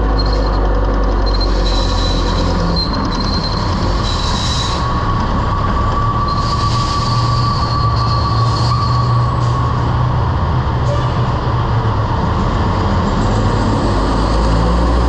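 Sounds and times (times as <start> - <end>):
high steady squeal: 0.0 - 11.6
truck engine and road rumble: 0.0 - 15.0.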